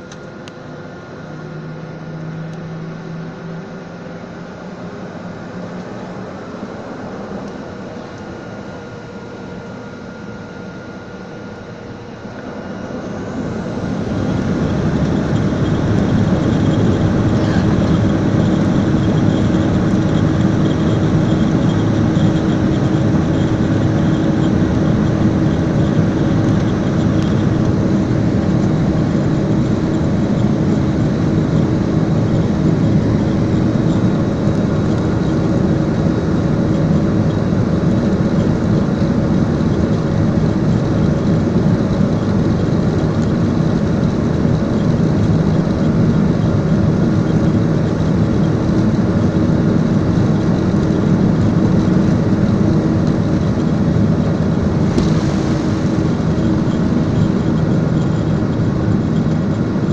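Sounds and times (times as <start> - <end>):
jet engines roaring: 0.0 - 59.9.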